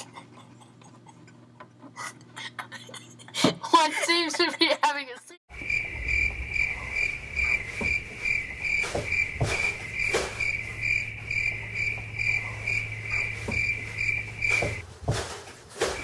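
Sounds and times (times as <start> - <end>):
cricket chirping: 5.5 - 14.8.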